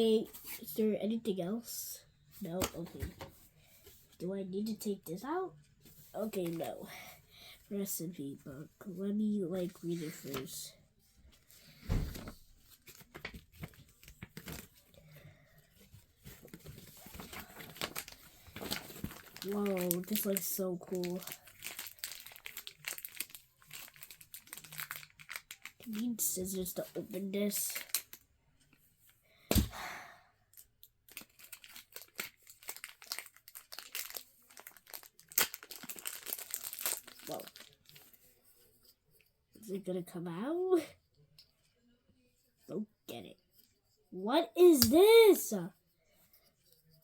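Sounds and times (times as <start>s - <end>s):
paper and plastic packaging rustling: 11.4s - 28.2s, 31.1s - 38.9s.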